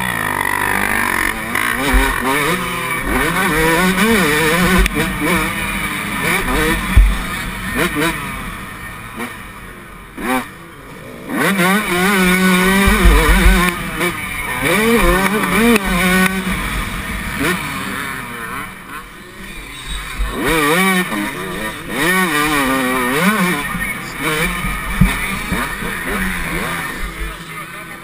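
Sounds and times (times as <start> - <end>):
two-stroke motorcycle engine revving: 0.0 - 28.0.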